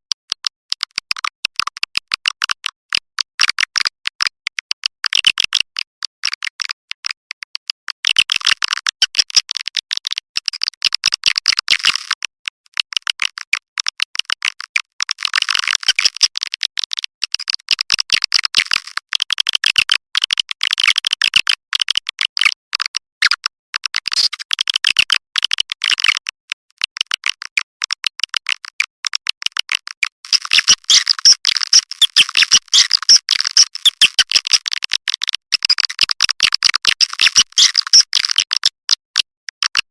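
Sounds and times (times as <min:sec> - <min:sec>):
swiftlets twittering chirps: 0:30.3 - 0:34.2, 0:37.1 - 0:38.4.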